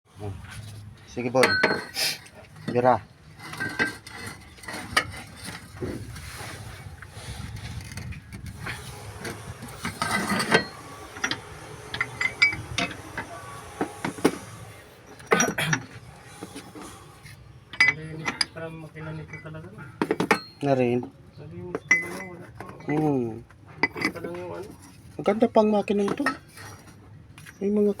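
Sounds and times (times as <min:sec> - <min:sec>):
tool scraping: 0:00.4 - 0:20.6, 0:21.8 - 0:27.1
hand tools clinking on metal: 0:01.3 - 0:05.6, 0:09.8 - 0:13.4, 0:17.7 - 0:21.1, 0:21.7 - 0:23.2.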